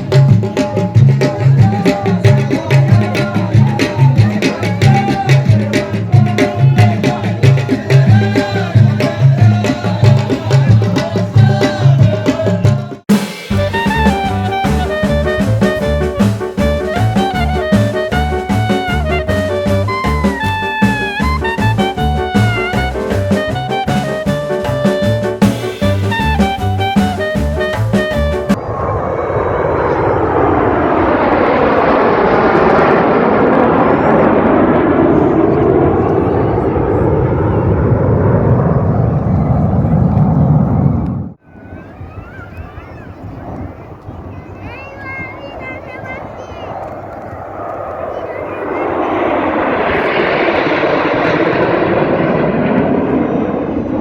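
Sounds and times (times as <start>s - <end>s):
jet aircraft roar: 0.0s - 54.0s.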